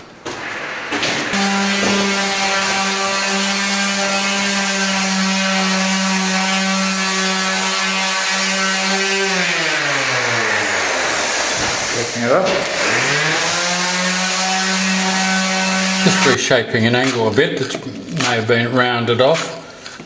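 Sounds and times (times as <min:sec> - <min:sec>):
electric power tool motor running: 0:01.2 - 0:16.4.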